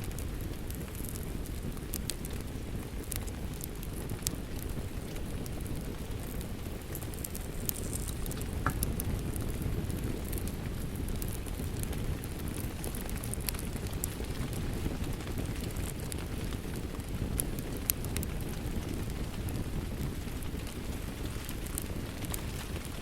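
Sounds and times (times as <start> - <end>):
rain falling: 0.0 - 23.0
wood fire crackling and popping: 0.0 - 23.0.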